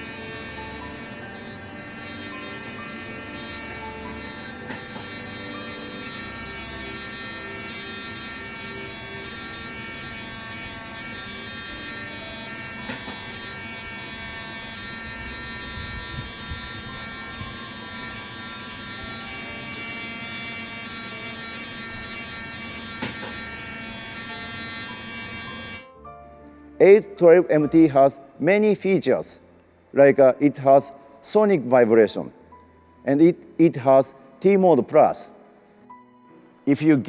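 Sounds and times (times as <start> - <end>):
dental handpiece electric buzz: 0.0 - 31.7, 32.5 - 36.9.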